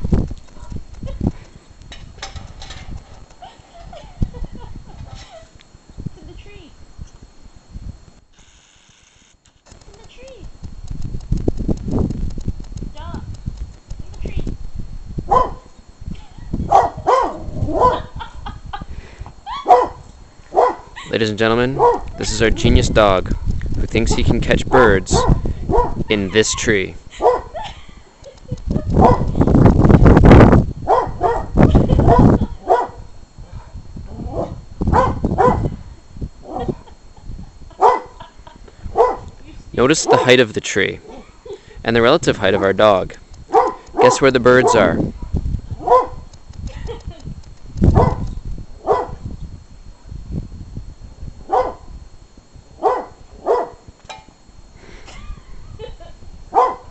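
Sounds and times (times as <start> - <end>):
dog barking: 15.3 - 15.7, 16.7 - 18.1, 19.6 - 20.9, 21.8 - 22.1, 25.2 - 26.0, 27.2 - 27.5, 29.0 - 29.3, 30.9 - 33.0, 34.4 - 35.6, 37.8 - 38.2, 39.0 - 39.3, 43.5 - 44.9, 45.8 - 46.2, 48.0 - 48.2, 48.8 - 49.2, 51.5 - 51.9, 52.8 - 53.8, 56.5 - 56.9.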